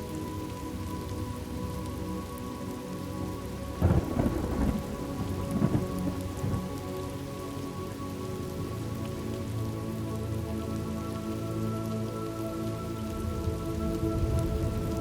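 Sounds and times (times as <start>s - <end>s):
steady rain falling: 0.0s - 15.0s
thunder rumbling: 3.8s - 6.8s.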